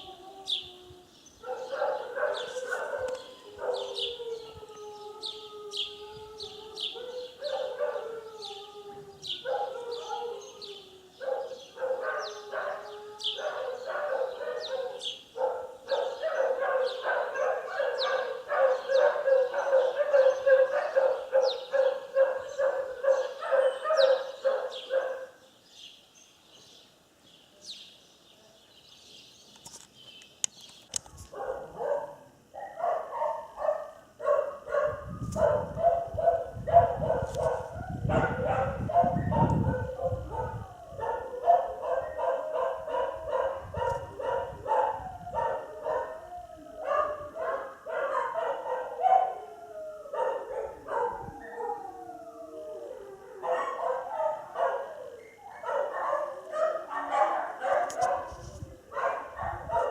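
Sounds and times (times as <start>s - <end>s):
dog barking: 1.4s - 4.0s, 7.0s - 8.0s, 9.4s - 10.4s, 11.2s - 12.8s, 13.4s - 25.4s, 31.3s - 46.2s, 46.8s - 49.4s, 50.2s - 51.8s, 53.4s - 59.9s.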